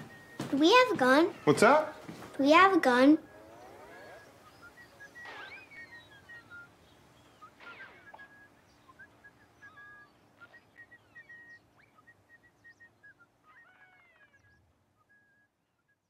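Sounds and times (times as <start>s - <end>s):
bird chirps and whistles: 3.8s - 16.0s.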